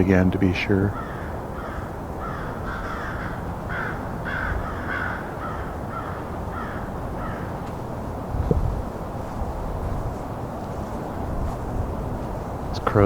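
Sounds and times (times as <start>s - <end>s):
crows cawing: 0.8s - 11.3s.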